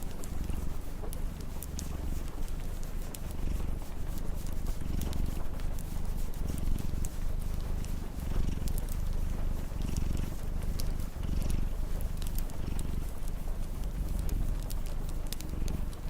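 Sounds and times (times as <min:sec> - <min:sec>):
cat purring: 0:00.0 - 0:16.0
wood fire crackling: 0:12.3 - 0:12.8.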